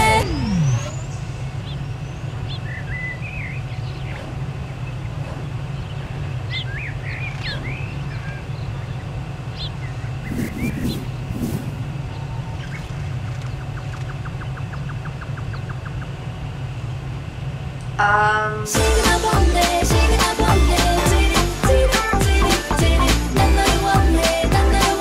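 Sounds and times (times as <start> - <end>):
birds chirping: 0.6 - 16.2
falling swoop: 10.2 - 12.7
low rumble: 10.2 - 13.2
music: 18.7 - 25.0.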